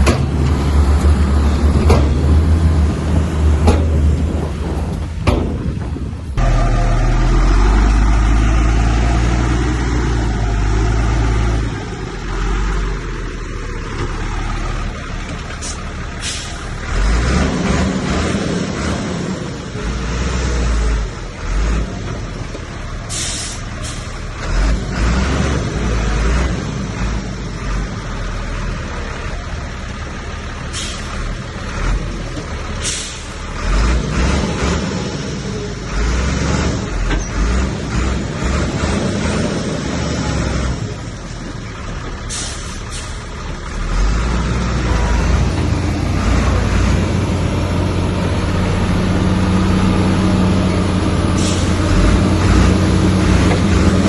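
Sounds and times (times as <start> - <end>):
diesel engine rumble: 0.0 - 54.0
short sharp hisses: 23.1 - 24.1, 30.7 - 31.1, 32.8 - 33.4, 42.3 - 43.2.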